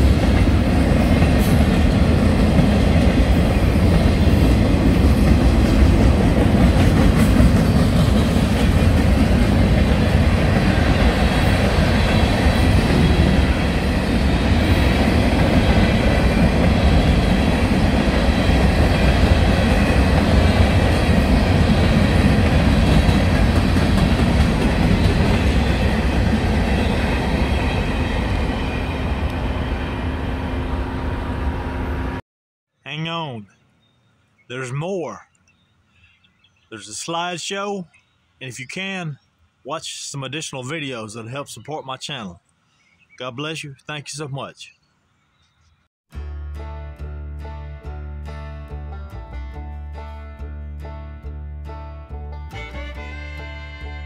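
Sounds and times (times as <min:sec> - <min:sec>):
freight train wheels on rail: 0:00.0 - 0:32.2.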